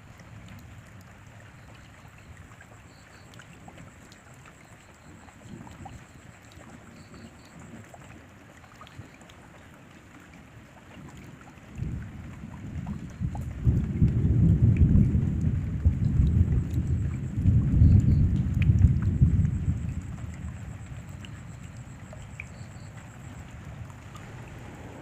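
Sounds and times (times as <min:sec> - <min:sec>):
steady rain: 0:00.0 - 0:25.0
water dripping: 0:00.0 - 0:25.0
thunder rolling: 0:23.7 - 0:25.0.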